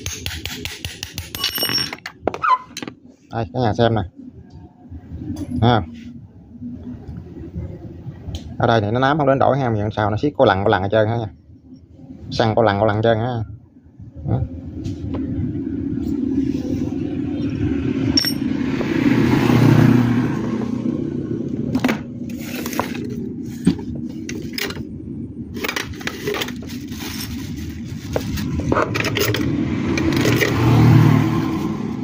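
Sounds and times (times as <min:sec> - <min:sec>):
metal clinks and scrapes: 0:01.2 - 0:02.9, 0:18.1 - 0:18.5, 0:25.6 - 0:30.6
steady low rumble: 0:03.0 - 0:32.0.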